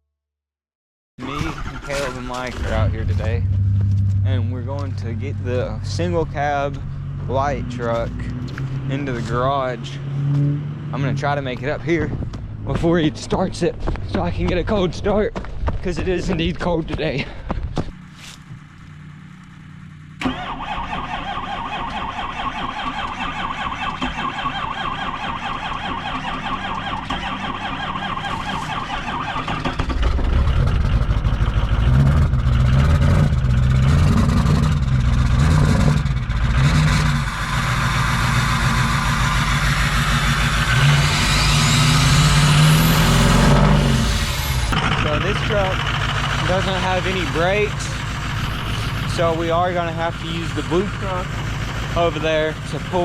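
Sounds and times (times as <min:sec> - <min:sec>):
starter motor cranking: 0:01.2 - 0:03.2, 0:20.2 - 0:32.8, 0:34.2 - 0:52.0
diesel engine running: 0:01.2 - 0:53.0.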